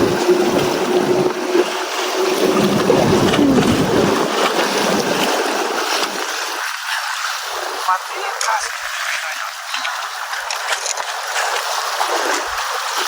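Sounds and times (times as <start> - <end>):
wind on microphone: 0.0 - 1.6, 2.3 - 5.4
waves breaking against rock: 0.0 - 13.0.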